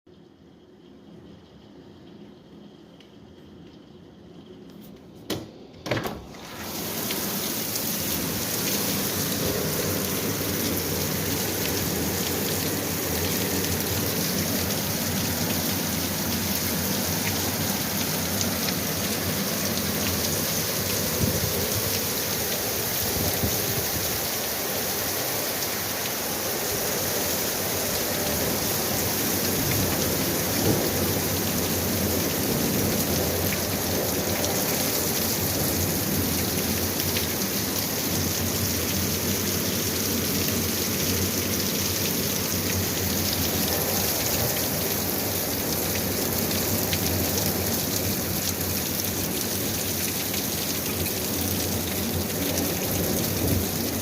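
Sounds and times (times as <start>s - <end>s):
heavy rain pouring: 1.6s - 54.0s.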